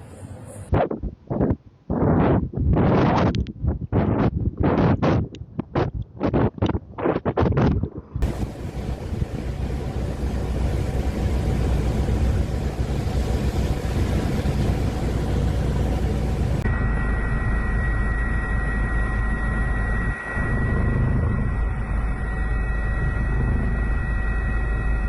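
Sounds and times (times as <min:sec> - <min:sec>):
wind buffeting microphone: 0:00.2 - 0:16.7
steady low rumble: 0:07.6 - 0:25.0
thin high whine: 0:08.2 - 0:25.0.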